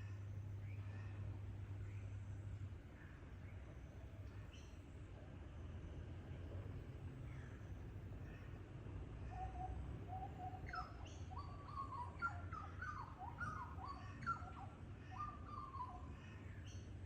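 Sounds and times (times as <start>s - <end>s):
bird whistling song: 9.5s - 16.8s.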